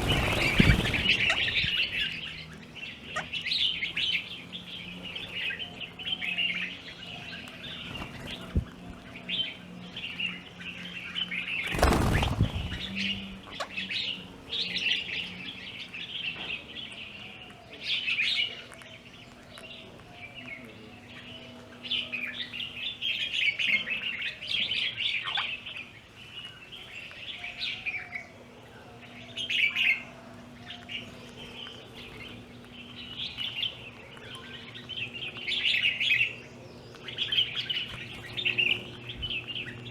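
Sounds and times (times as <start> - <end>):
loud rush of noise: 0.0 - 2.3
small birds chirping: 0.0 - 39.9.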